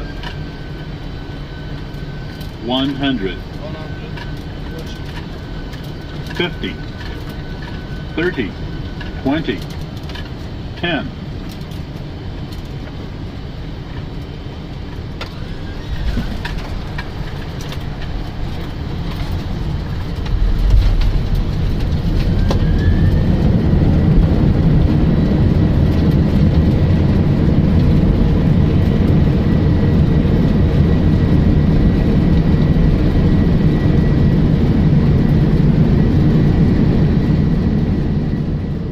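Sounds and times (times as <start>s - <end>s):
aircraft rumble on runway: 0.0s - 38.9s
jet engines roaring: 0.0s - 38.9s.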